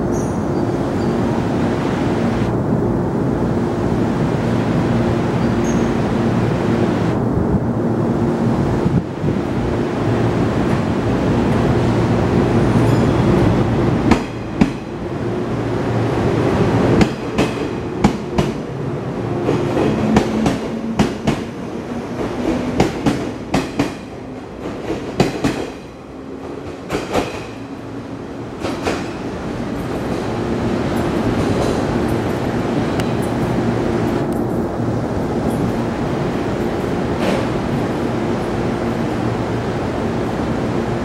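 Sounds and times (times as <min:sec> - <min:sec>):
approaching train hum: 0:00.0 - 0:41.0
train equipment hum: 0:00.0 - 0:41.0.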